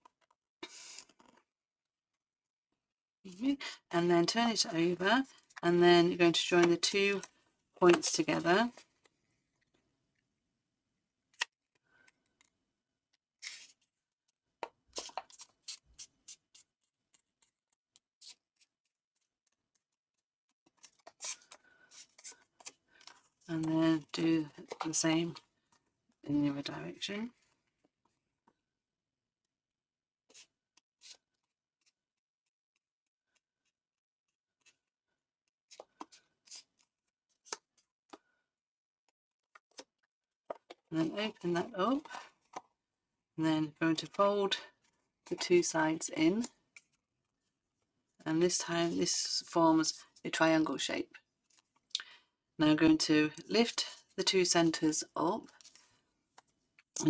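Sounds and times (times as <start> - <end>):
paper rustling and folding: 13.4 - 14.0, 14.9 - 23.5, 30.3 - 32.0, 35.7 - 38.3.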